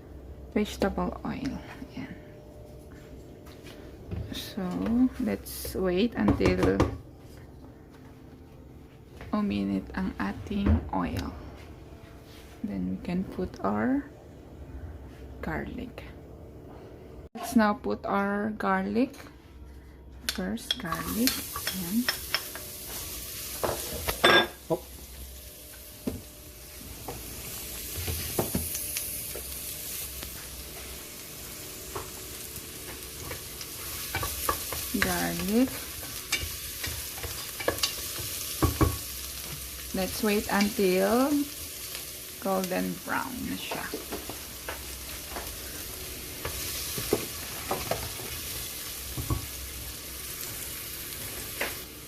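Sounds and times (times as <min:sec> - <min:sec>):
garlic sizzling in oil: 0:20.8 - 0:52.0.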